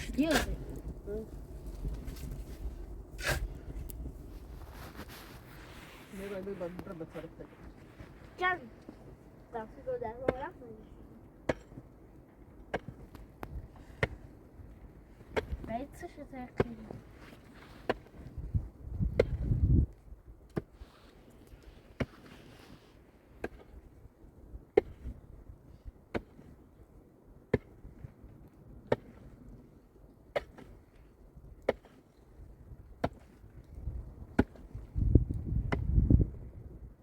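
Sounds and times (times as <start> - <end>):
low rough rumbling: 0.0 - 5.8.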